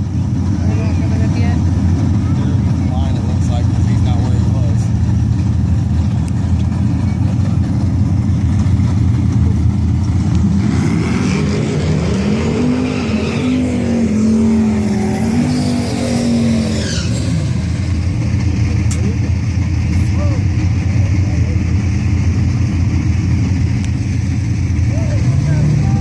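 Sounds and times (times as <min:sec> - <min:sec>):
steady low rumble: 0:00.0 - 0:12.4
car engine accelerating: 0:00.0 - 0:26.0.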